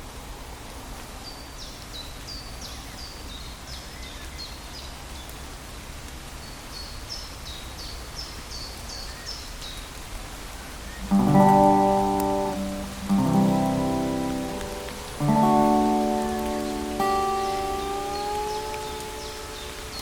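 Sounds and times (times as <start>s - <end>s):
steady rain hiss: 0.0s - 20.0s
songbird singing high notes: 10.9s - 20.0s.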